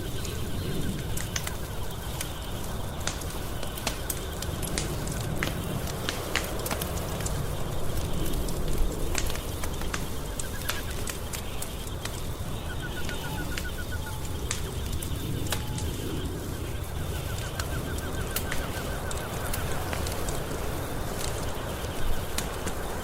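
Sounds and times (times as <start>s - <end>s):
wood fire crackling: 0.0s - 23.0s
rapidly pulsed chirping trill: 9.2s - 22.2s.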